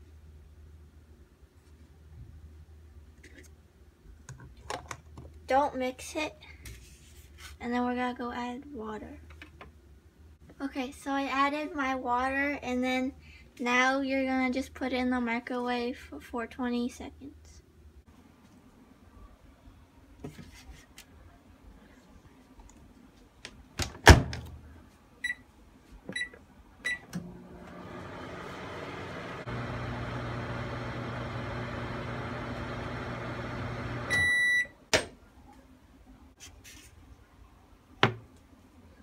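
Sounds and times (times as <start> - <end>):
microwave oven humming: 26.9 - 34.7
long beep: 34.1 - 34.7.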